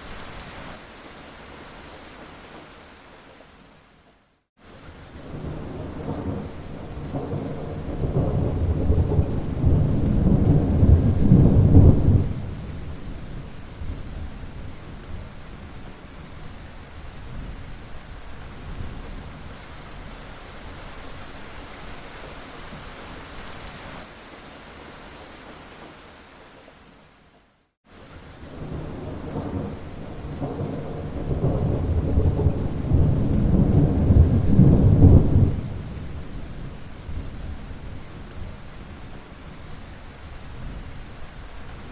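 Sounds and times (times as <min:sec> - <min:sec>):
steady rain: 0:00.0 - 0:41.9
thunder rumbling: 0:05.2 - 0:15.0, 0:28.4 - 0:38.6.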